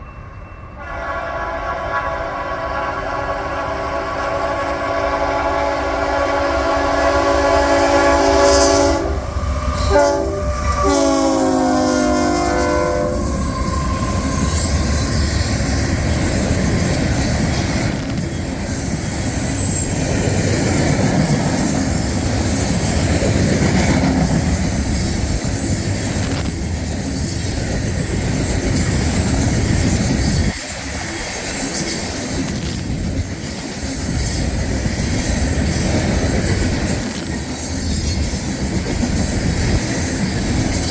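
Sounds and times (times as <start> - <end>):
train cars rumbling: 0.0 - 40.9
locomotive air horn: 0.8 - 14.6.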